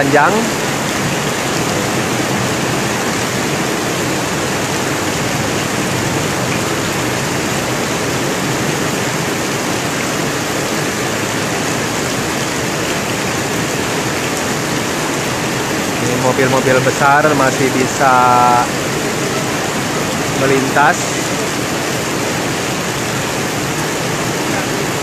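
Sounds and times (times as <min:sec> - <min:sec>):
heavy rain on flooded street: 0:00.0 - 0:25.0.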